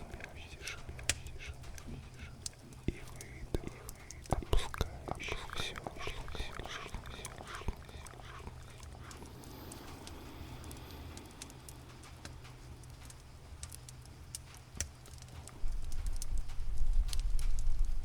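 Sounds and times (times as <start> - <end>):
cat purring: 0.0 - 14.0
campfire crackling: 0.0 - 18.0.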